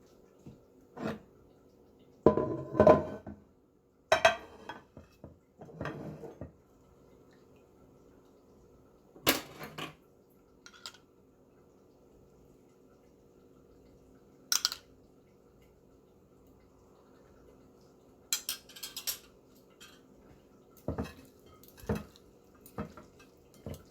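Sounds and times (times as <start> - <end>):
dishes and cutlery clattering: 2.3 - 3.4, 4.1 - 6.5, 18.4 - 20.1, 20.9 - 22.2.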